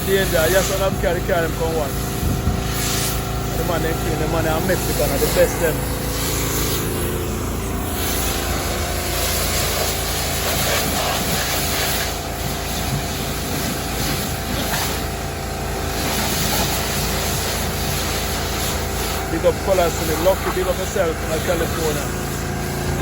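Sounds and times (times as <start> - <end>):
low hum: 0.8 - 19.2.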